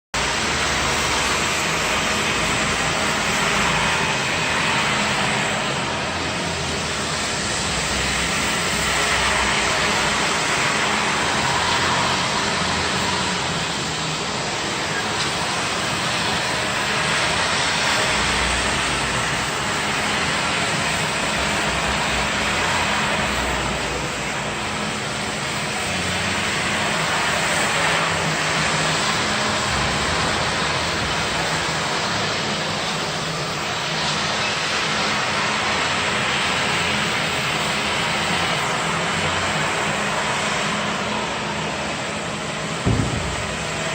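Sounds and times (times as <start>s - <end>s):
floor-cleaning vehicle rushing: 0.2s - 43.9s
low motor hum: 42.8s - 43.9s.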